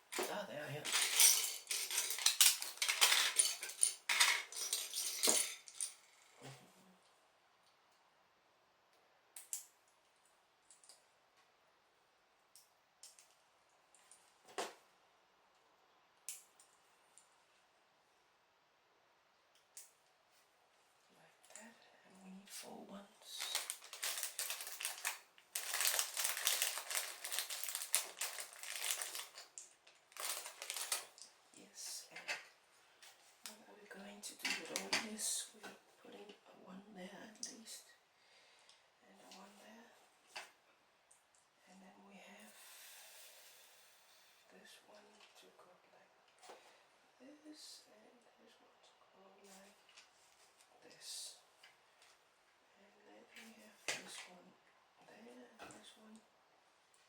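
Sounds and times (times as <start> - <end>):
plastic pieces rattling: 0.2 - 6.0, 23.4 - 31.2
plastic bricks clicking and rattling: 30.2 - 31.2.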